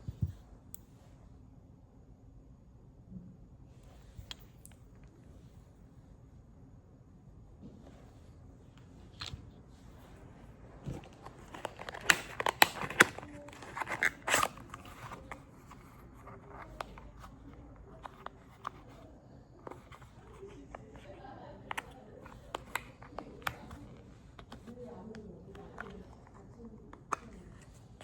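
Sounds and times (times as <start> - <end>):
handling clicks and crinkles: 8.8 - 28.0.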